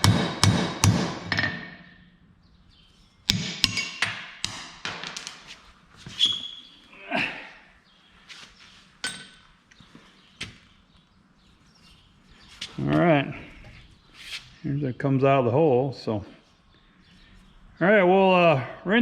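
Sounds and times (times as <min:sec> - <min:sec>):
hammer striking metal pipe: 0:00.0 - 0:02.0, 0:03.3 - 0:04.9.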